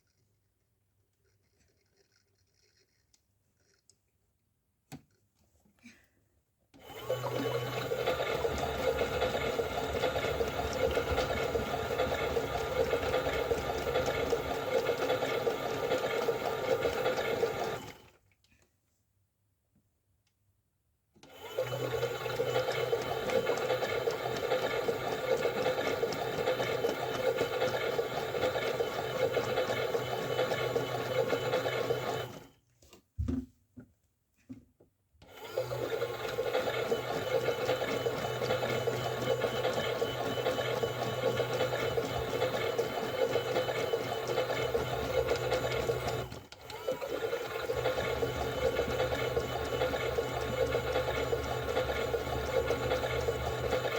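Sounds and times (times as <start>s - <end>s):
toy washing machine motor hum: 6.8s - 18.2s, 21.2s - 32.6s, 35.2s - 53.9s.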